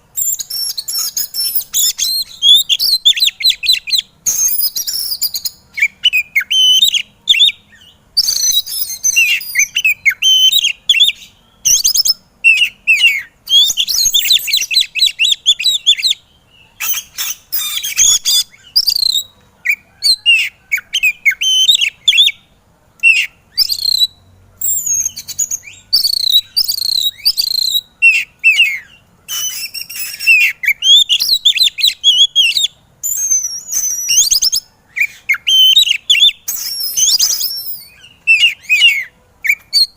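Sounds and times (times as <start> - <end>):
magpie-robin singing: 0.0 - 39.9.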